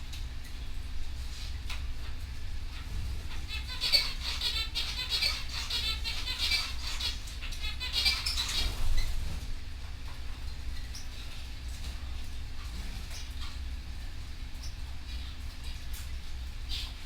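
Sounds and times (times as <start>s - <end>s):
steady low hum: 0.0s - 17.0s
canary singing trills: 2.0s - 9.4s, 14.4s - 17.0s.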